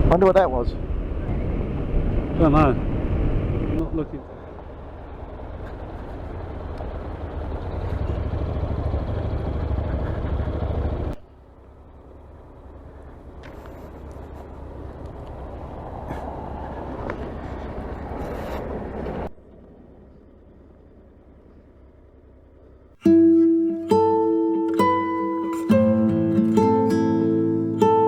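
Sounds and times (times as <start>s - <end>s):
wind rush: 0.0s - 5.1s, 14.7s - 19.3s
motorcycle engine: 0.0s - 28.0s.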